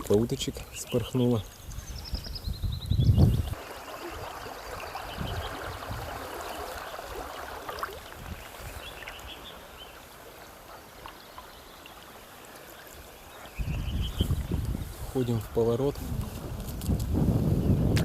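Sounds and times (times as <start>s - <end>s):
river water gurgling and splashing: 3.5s - 13.6s.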